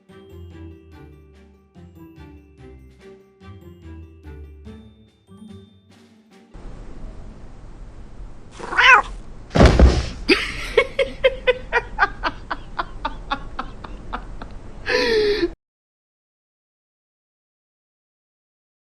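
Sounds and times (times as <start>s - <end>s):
cat yowling: 8.6s - 9.2s
loud thump: 9.5s - 10.3s.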